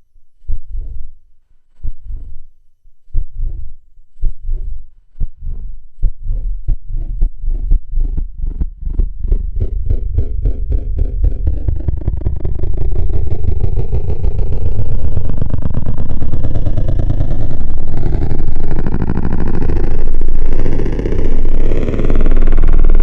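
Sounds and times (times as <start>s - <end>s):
gritty low synthesizer drone: 5.4s - 23.0s.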